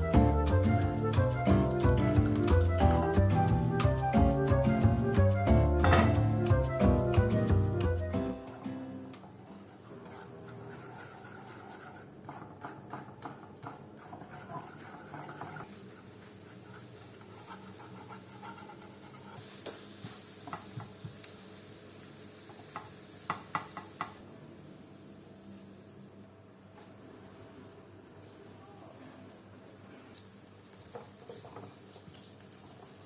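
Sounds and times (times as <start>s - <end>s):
food sizzling in frying pan: 15.5s - 26.0s, 30.1s - 33.0s.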